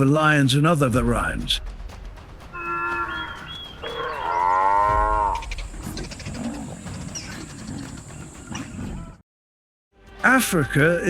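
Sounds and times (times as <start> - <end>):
buffalo bellowing: 2.6 - 9.2.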